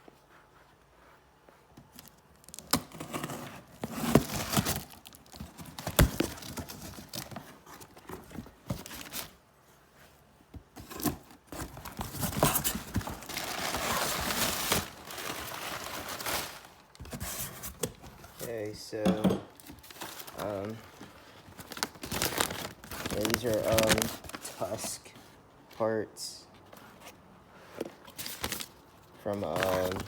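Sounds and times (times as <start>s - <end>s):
packaging tearing and crinkling: 2.0s - 7.4s, 10.8s - 16.9s, 21.6s - 24.8s, 29.4s - 30.0s.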